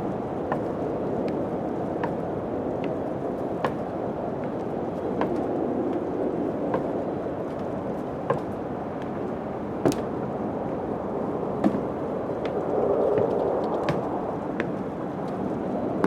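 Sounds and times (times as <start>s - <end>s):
steady wind: 0.0s - 16.0s
sharp short knocks: 9.8s - 10.2s, 13.2s - 14.8s.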